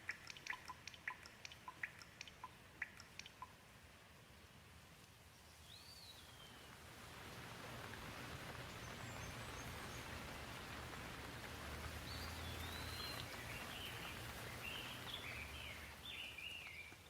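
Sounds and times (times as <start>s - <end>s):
gentle rain falling: 0.0s - 17.0s
bird singing: 5.6s - 6.6s, 12.1s - 17.0s.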